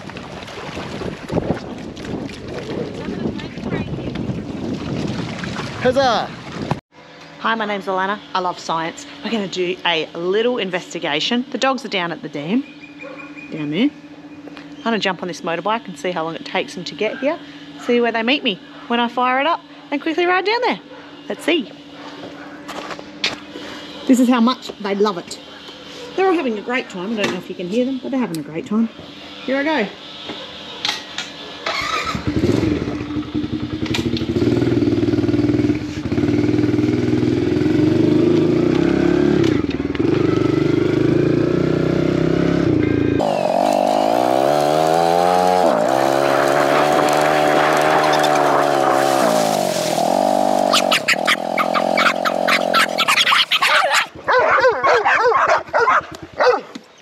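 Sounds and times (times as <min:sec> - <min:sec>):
dogs barking excitedly: 0:13.0 - 0:13.5, 0:17.0 - 0:20.0, 0:20.8 - 0:22.9, 0:23.8 - 0:24.3, 0:25.4 - 0:26.9, 0:30.3 - 0:31.8, 0:45.6 - 0:49.5, 0:50.4 - 0:56.8
motorbike engine starting and revving: 0:31.6 - 0:54.1
motorbike idling: 0:31.7 - 0:38.8, 0:49.6 - 0:53.3.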